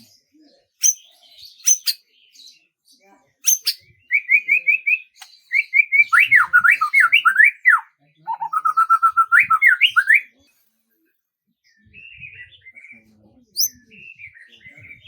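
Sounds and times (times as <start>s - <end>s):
songbird singing whistled phrases: 0.8s - 2.0s, 3.4s - 10.3s, 13.6s - 15.0s
faint bird twittering: 0.8s - 2.5s, 3.4s - 10.4s, 11.7s - 15.0s.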